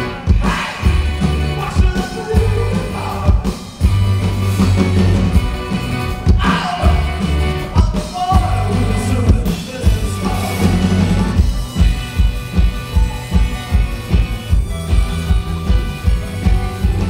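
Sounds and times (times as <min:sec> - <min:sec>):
person singing: 0:00.0 - 0:03.5, 0:06.3 - 0:11.4
drums: 0:00.0 - 0:17.0
live rock band playing: 0:00.0 - 0:17.0.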